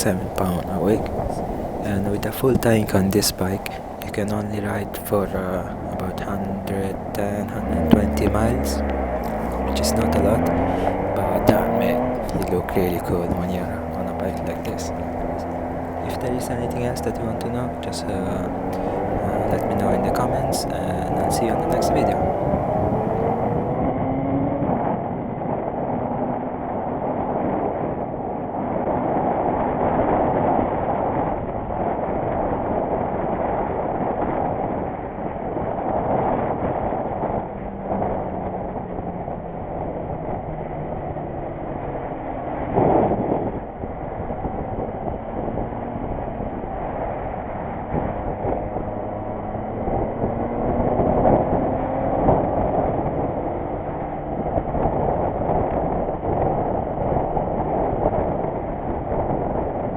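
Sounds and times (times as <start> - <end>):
vehicle engine running: 0.0 - 23.9, 35.9 - 56.8
road and air noise: 0.0 - 59.9.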